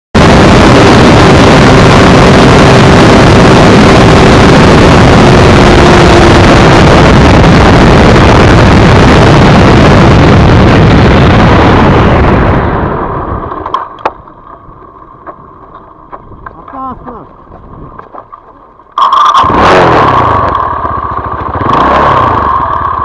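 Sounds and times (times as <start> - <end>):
motorcycle engine running: 0.2 - 23.0.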